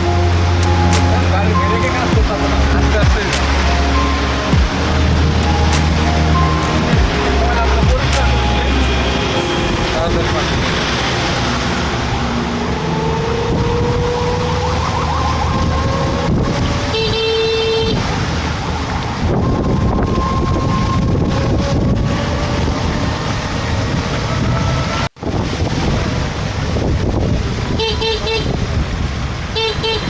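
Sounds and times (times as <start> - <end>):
vehicle engine running: 0.0 - 13.4
heavy rain: 0.0 - 30.0
road noise: 0.0 - 30.0
car horn toot: 16.9 - 18.1, 29.6 - 30.0.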